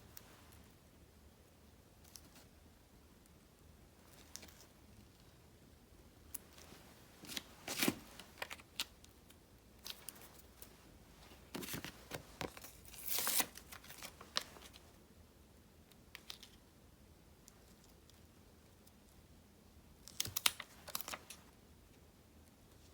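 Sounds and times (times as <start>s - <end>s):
paper rustling: 6.4s - 8.9s, 9.9s - 14.8s.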